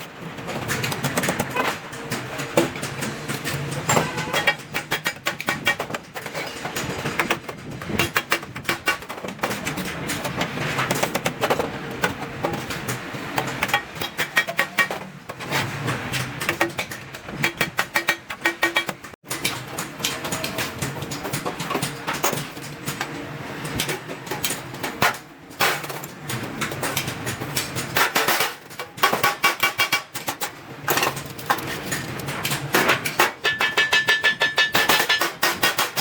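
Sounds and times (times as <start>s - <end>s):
hammer striking steel sheet: 33.2s - 36.0s.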